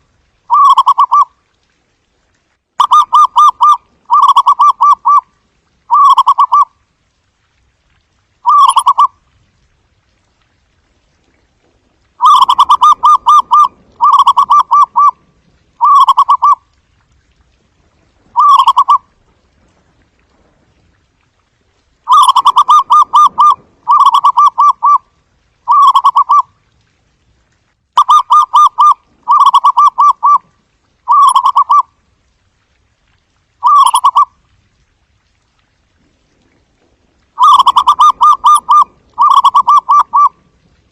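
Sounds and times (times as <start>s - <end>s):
dove cooing trills: 0.5s - 1.3s, 2.8s - 5.2s, 5.9s - 6.7s, 8.4s - 9.1s, 12.2s - 15.2s, 15.8s - 16.6s, 18.4s - 19.0s, 22.1s - 25.0s, 25.7s - 26.5s, 28.0s - 30.5s, 31.1s - 31.9s, 33.6s - 34.3s, 37.4s - 40.4s.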